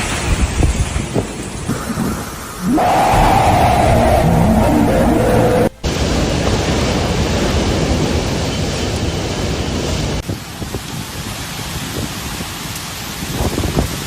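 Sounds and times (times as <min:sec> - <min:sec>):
heavy rain: 0:00.0 - 0:14.0
storm wind: 0:00.0 - 0:14.0
steady tones: 0:02.6 - 0:05.9.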